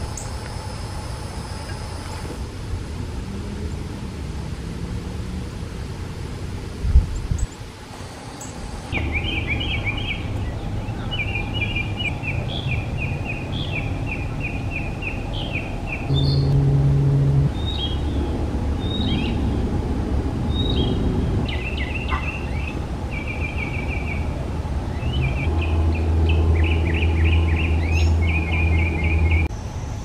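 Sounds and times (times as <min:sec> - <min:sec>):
low outdoor rumble: 0:00.0 - 0:30.0
bird calling in high notes: 0:16.1 - 0:18.2.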